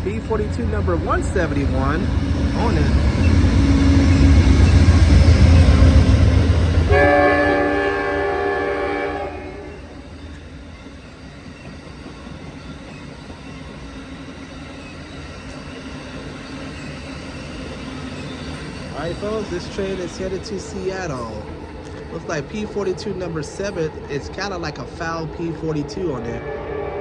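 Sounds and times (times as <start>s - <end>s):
diesel locomotive engine rumble: 0.0s - 27.0s
train cars rolling by: 0.0s - 27.0s
multi-note train horn: 6.0s - 10.0s, 26.2s - 27.0s.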